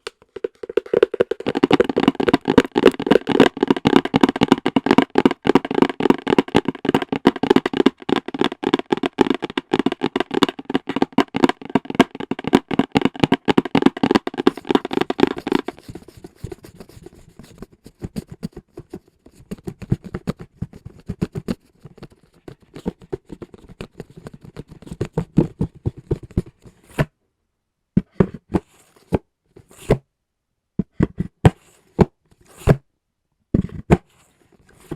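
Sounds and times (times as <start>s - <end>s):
fingernail tapping on hard objects: 0.4s - 16.8s.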